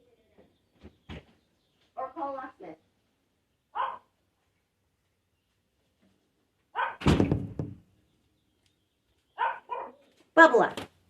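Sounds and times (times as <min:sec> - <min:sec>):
heavy thud: 0:07.0 - 0:07.8.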